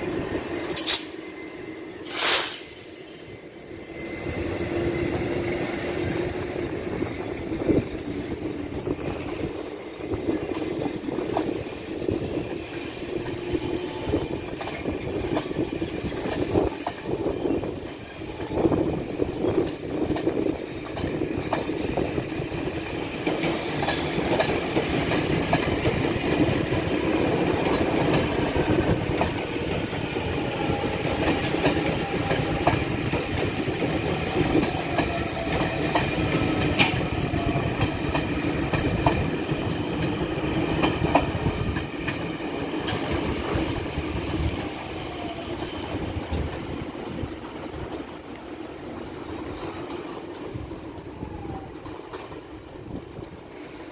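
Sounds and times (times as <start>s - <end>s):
train wheels squealing: 0.0s - 46.8s, 48.9s - 52.2s, 53.4s - 53.9s
train wheels clattering over rail joints: 19.4s - 44.7s.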